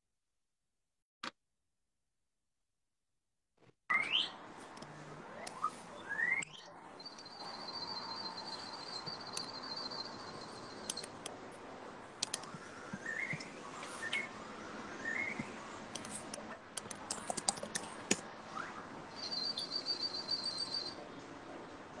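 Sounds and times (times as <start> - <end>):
faint high chirps and trill: 5.3 - 11.1, 18.6 - 21.2.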